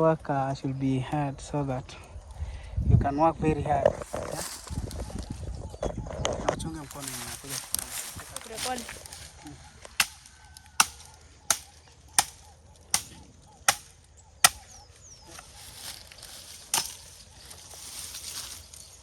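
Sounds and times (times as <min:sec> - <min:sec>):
machete chopping wood: 0:09.9 - 0:14.8, 0:16.7 - 0:17.1.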